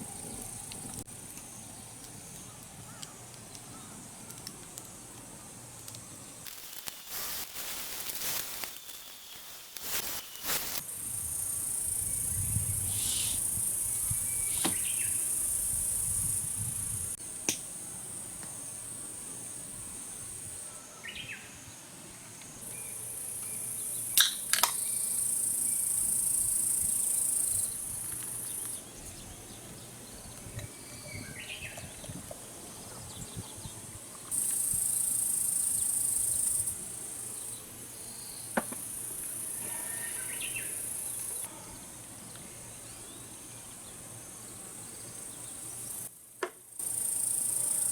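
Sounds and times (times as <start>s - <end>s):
insects buzzing: 6.1s - 29.2s, 34.3s - 47.9s.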